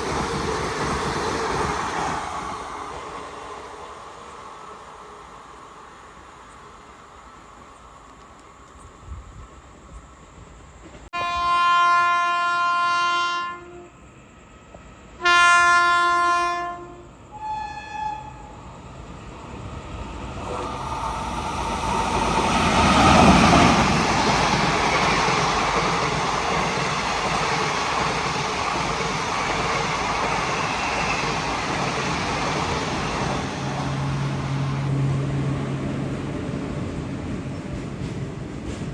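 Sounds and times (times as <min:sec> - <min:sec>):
train passing at speed: 0:00.0 - 0:38.9
train horn blasts: 0:11.1 - 0:14.0, 0:15.2 - 0:18.6.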